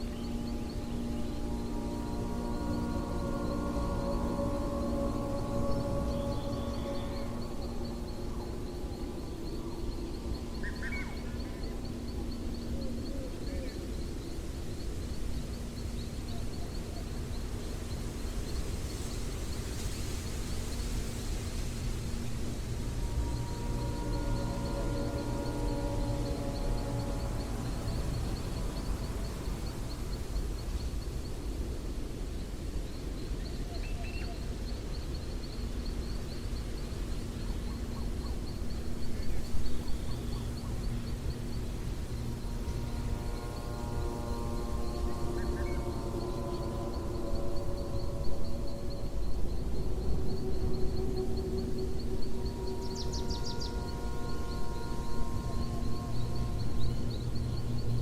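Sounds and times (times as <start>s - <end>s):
faint high-pitched chirping: 0.0s - 58.0s
soft hiss: 0.0s - 58.0s
steady low rumble: 35.6s - 58.0s.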